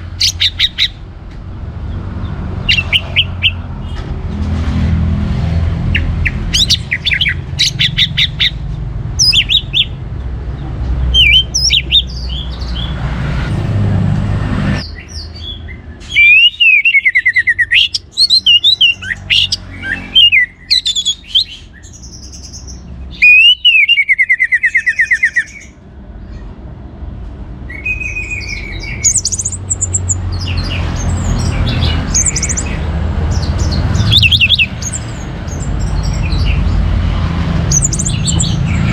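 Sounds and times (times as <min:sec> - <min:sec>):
thrush singing whistled phrases: 0:00.2 - 0:01.0, 0:02.6 - 0:03.7, 0:05.9 - 0:08.6, 0:09.2 - 0:10.0, 0:11.1 - 0:13.0, 0:14.9 - 0:25.8, 0:27.7 - 0:32.9, 0:33.6 - 0:35.2, 0:37.7 - 0:38.9.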